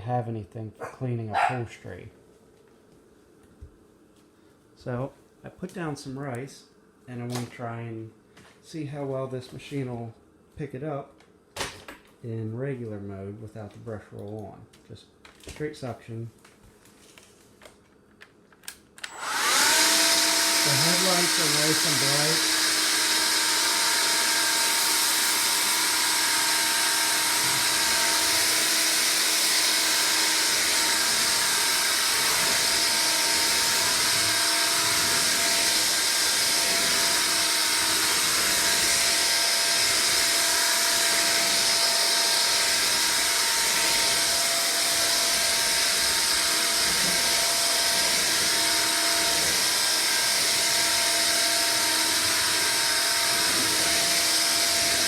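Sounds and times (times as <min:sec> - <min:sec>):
vacuum cleaner running: 0:19.0 - 0:55.0.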